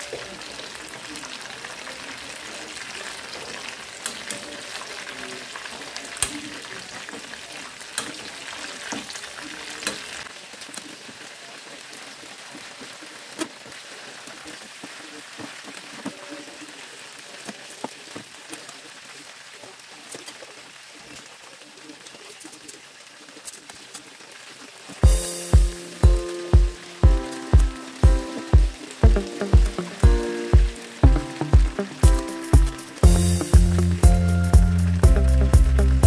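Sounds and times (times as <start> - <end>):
chicken frying in oil: 0.0 - 36.0
metal tongs clicking on pan: 4.0 - 4.4, 8.0 - 8.3, 9.8 - 10.1.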